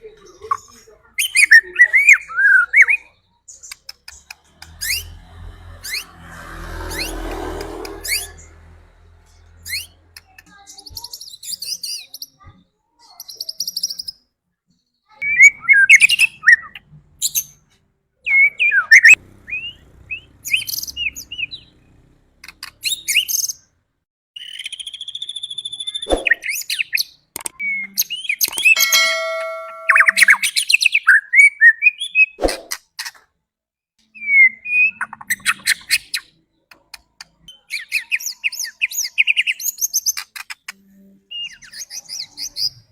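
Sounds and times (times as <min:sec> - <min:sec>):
bird singing whistled phrases: 0:01.2 - 0:03.1, 0:24.4 - 0:26.9.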